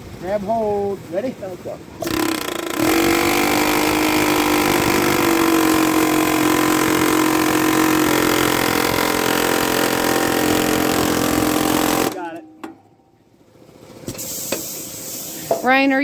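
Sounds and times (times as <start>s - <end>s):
power tool motor running: 2.0s - 12.3s.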